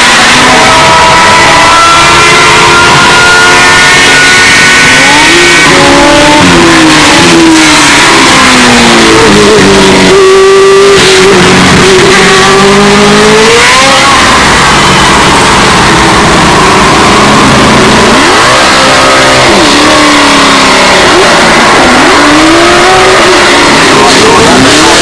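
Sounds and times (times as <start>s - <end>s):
race car engines passing by: 0.0s - 25.0s.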